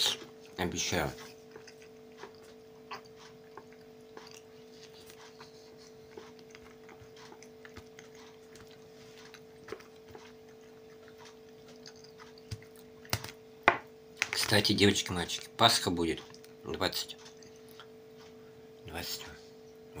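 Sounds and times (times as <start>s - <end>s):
man chewing: 0.0s - 13.6s, 17.2s - 18.5s
low electrical hum: 0.0s - 20.0s.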